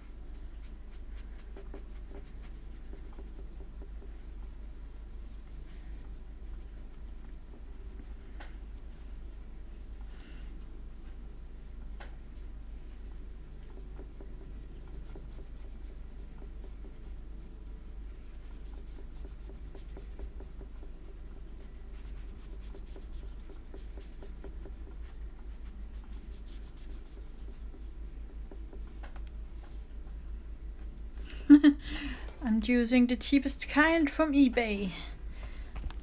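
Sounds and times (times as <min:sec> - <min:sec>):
paintbrush scratching on paper: 0:00.0 - 0:04.1, 0:12.8 - 0:17.2, 0:17.9 - 0:28.7
steady low hum: 0:00.0 - 0:36.0.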